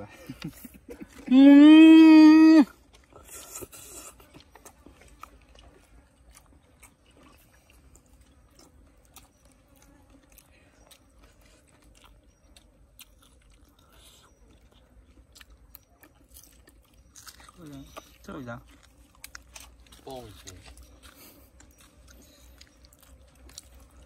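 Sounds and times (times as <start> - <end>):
faint chewing and crunching: 0.0 - 24.0.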